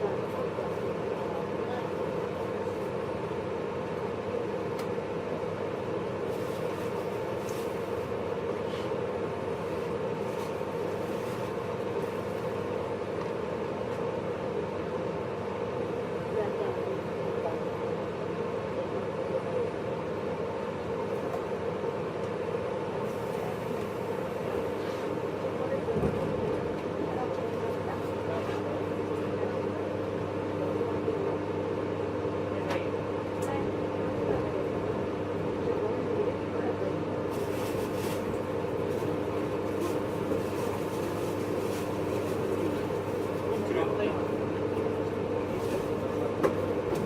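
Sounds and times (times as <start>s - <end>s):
train running gear hum: 20.6s - 30.9s, 37.3s - 47.0s.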